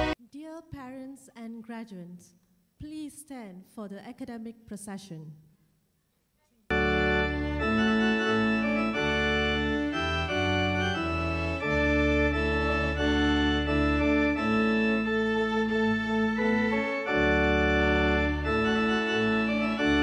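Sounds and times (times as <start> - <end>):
organ playing chords: 6.7 - 20.0.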